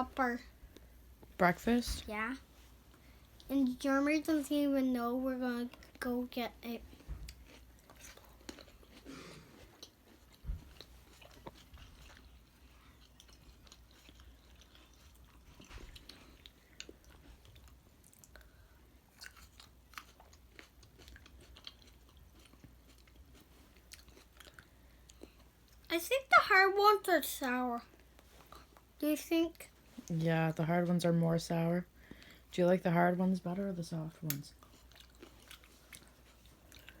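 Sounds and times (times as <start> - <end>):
grapes being chewed: 5.6 - 25.9, 27.9 - 29.0, 34.5 - 37.0.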